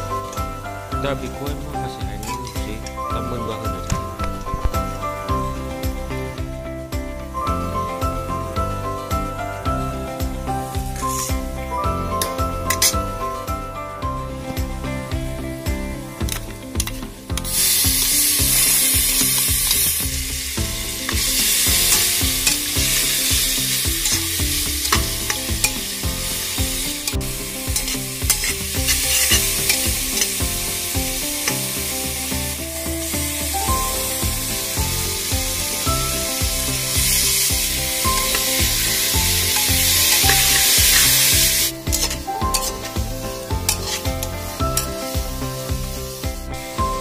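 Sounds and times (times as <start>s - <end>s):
onions sizzling in hot fat: 0.0s - 13.6s, 14.3s - 47.0s
metal spatula scraping a pot: 27.1s - 30.3s, 41.9s - 43.0s, 43.7s - 44.2s.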